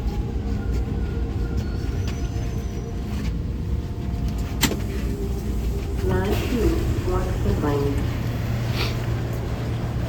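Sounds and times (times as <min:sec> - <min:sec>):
vehicle rumble: 0:00.0 - 0:10.0.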